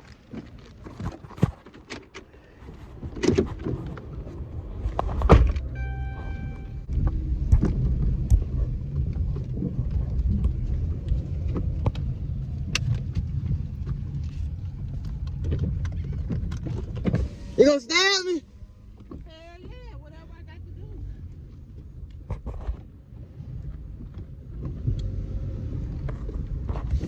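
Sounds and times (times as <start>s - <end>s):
car engine and road noise: 0.0s - 27.0s
car door shutting: 5.0s - 6.8s
electronic beep: 5.7s - 6.9s.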